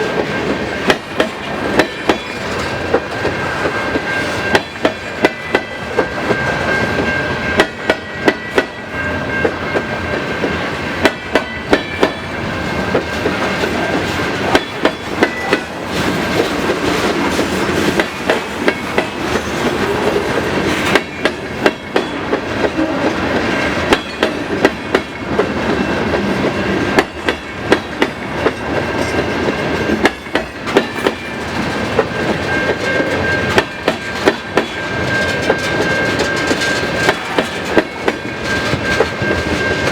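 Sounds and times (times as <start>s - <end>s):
steady rumble of freight cars: 0.0s - 39.9s
train wheels clacking over rail joints: 0.0s - 39.9s.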